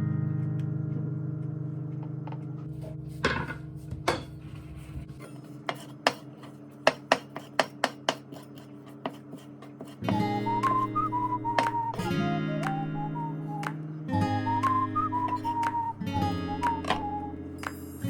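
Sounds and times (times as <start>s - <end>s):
utensils tapping on dishes: 5.2s - 10.4s, 16.6s - 17.9s
guitar music with whistling: 10.0s - 18.0s.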